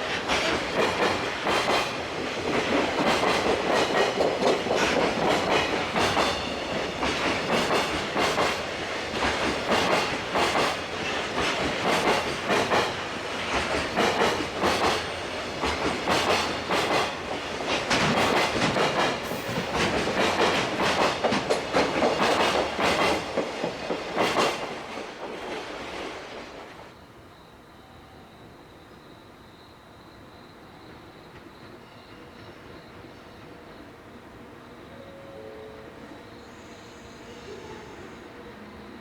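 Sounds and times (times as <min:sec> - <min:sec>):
freight train wheels clattering: 0:00.0 - 0:26.7.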